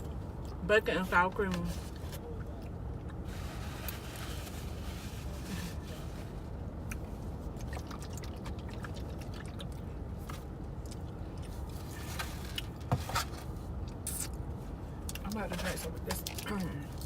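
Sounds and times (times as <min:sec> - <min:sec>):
chewing and mouth clicks: 0:06.8 - 0:11.9.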